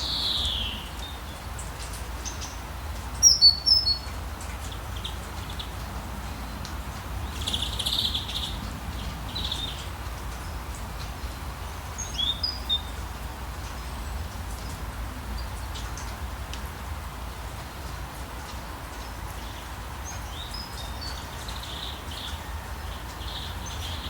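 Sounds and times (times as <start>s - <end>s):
birds chirping: 0.0s - 14.8s
rain hissing: 0.0s - 24.0s.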